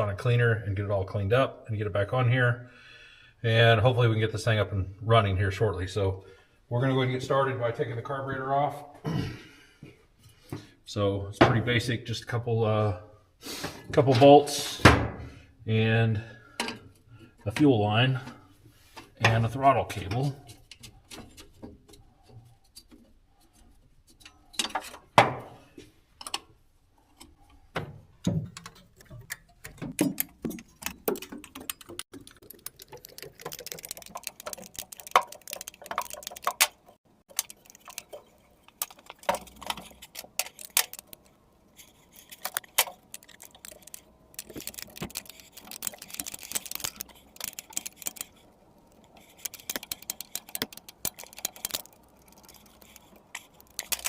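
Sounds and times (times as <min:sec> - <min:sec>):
hand tools clicking on metal: 0:28.2 - 0:54.0
rapid clicking: 0:28.6 - 0:54.0.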